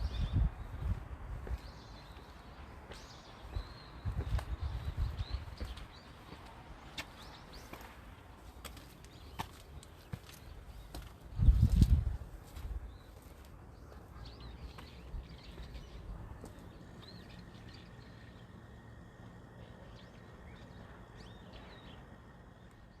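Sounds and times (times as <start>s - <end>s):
small birds chirping: 0.0s - 23.0s
steady low hum: 0.0s - 23.0s.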